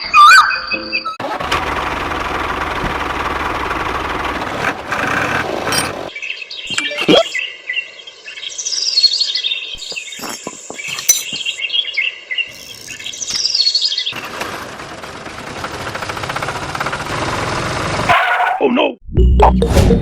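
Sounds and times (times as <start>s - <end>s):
birds chirping and whistling: 0.0s - 1.2s, 6.1s - 14.2s.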